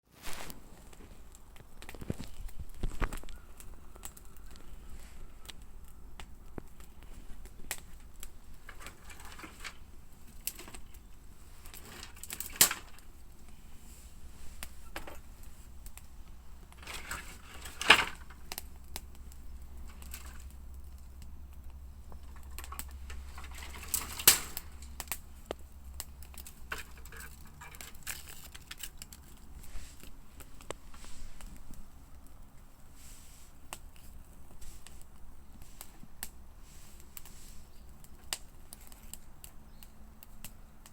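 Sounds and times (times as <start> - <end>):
wood fire crackling: 0.0 - 40.9
fire pops: 0.1 - 40.9
low steady rumble: 12.9 - 38.7.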